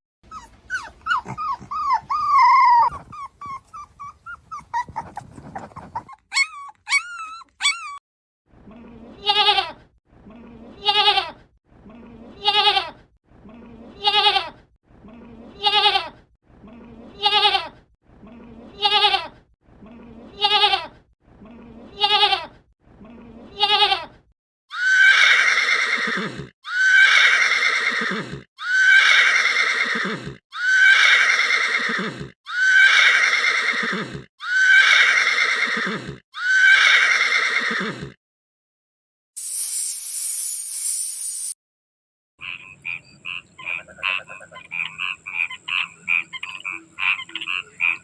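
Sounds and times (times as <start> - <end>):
horse whinnying: 24.7 - 38.2.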